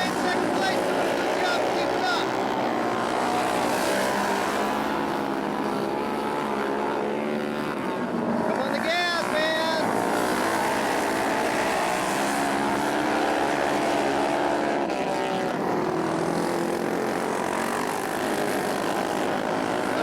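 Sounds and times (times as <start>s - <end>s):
racing motorcycle engines: 0.0s - 20.0s.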